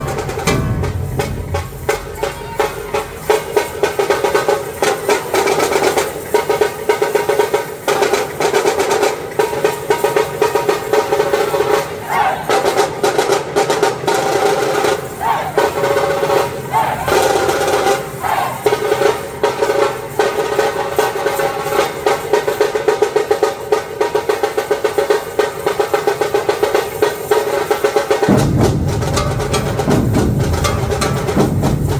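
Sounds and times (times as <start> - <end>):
drum team drumming: 0.0 - 9.4, 10.2 - 21.3, 28.1 - 31.9.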